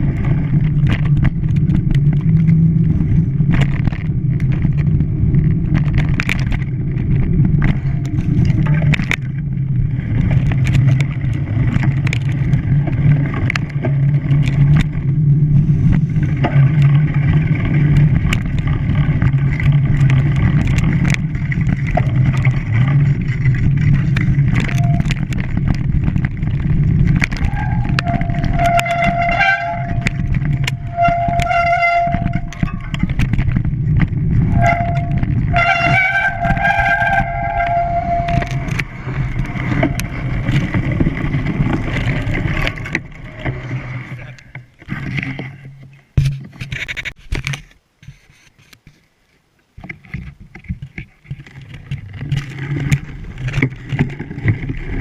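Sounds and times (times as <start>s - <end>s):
horn sounding: 27.5s - 32.7s, 34.5s - 38.8s.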